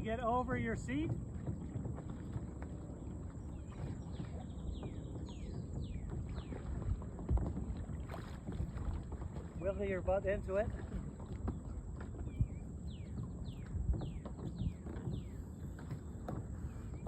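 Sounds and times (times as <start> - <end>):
water sloshing: 0.0 - 17.0
person climbing onto kayak: 10.8 - 17.0.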